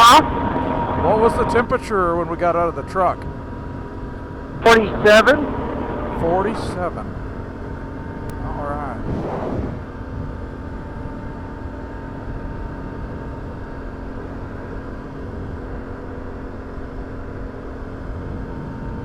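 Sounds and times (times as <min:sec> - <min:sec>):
atv engine running: 0:04.6 - 0:06.8.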